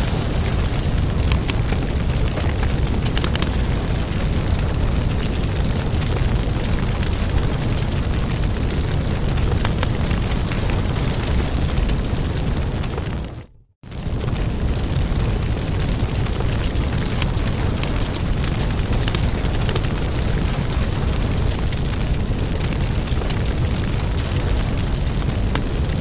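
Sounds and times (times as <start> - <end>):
low fire rumble: 0.0 - 26.0
wood fire crackling and popping: 0.0 - 26.0.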